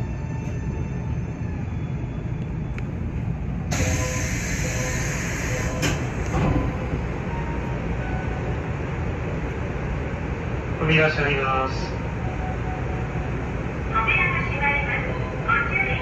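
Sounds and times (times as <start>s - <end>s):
train equipment low rumble: 0.0s - 16.0s.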